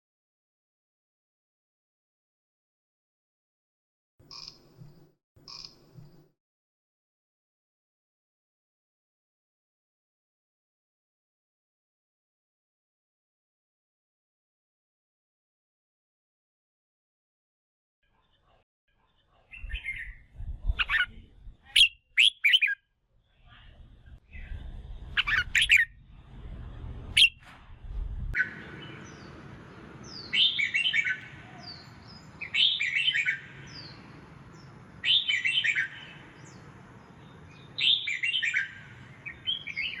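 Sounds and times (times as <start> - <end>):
bird calling and singing: 4.3 - 4.9, 19.4 - 22.8, 24.3 - 26.0, 27.1 - 27.4, 30.0 - 40.0
low rumble: 23.7 - 28.4.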